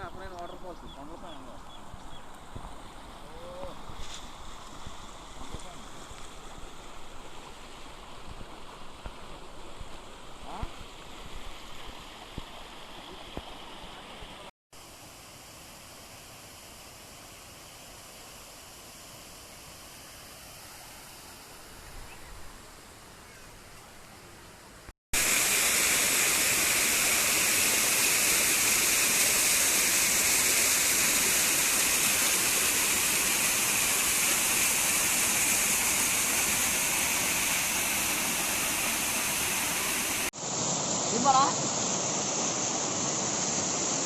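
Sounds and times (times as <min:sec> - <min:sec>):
faint steady hiss: 0:00.0 - 0:44.0
waterfall rushing close by: 0:25.2 - 0:44.0.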